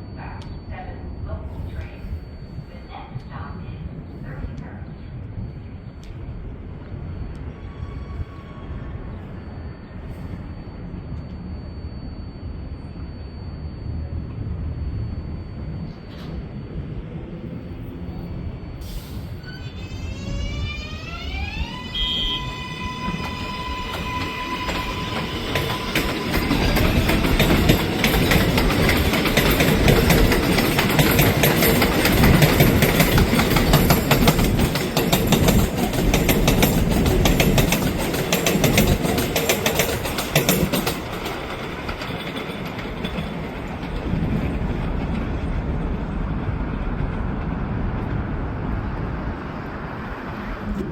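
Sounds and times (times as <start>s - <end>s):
subway train motor whine: 0.0s - 50.9s
train cars clattering over rail joints: 23.9s - 45.7s.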